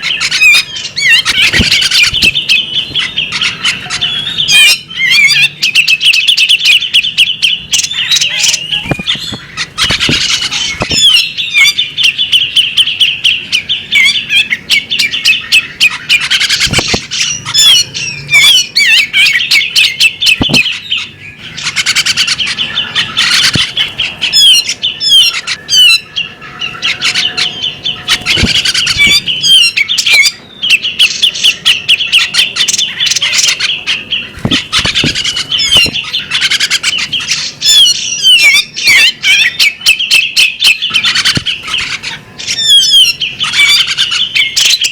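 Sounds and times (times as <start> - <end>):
bird chattering and clicking: 0.1 - 4.3, 7.8 - 12.0, 15.9 - 18.0, 19.1 - 26.0, 26.8 - 30.4, 31.0 - 39.0, 40.6 - 44.8.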